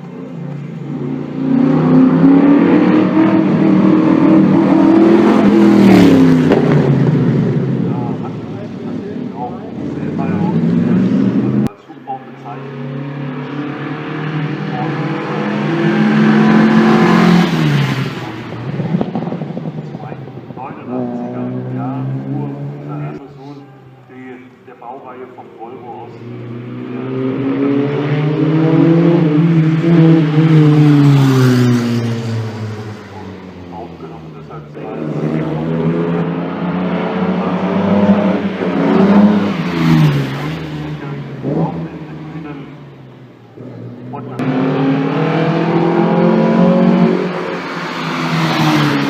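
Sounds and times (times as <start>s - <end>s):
racing car engine accelerating: 0.0s - 23.6s, 25.4s - 49.0s
racing car driving past: 25.8s - 49.0s.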